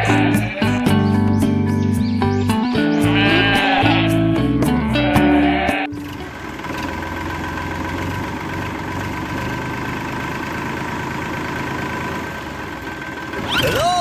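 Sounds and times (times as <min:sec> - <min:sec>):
miniature tractor motor humming: 0:05.8 - 0:14.0.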